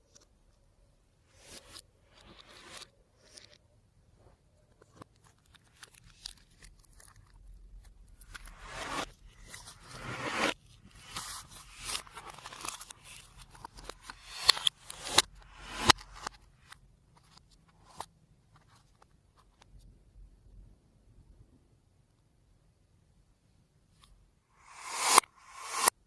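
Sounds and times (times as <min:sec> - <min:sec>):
slime crunching and scraping: 0:05.0 - 0:15.9.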